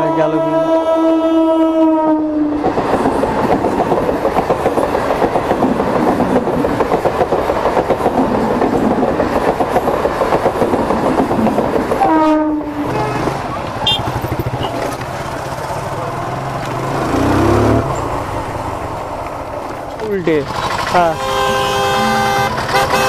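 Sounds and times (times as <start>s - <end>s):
train horn: 0.0s - 2.6s, 12.0s - 14.0s, 21.1s - 23.0s
train coaches rushing past: 2.4s - 23.0s
wheels clacking over rail joints: 2.5s - 23.0s.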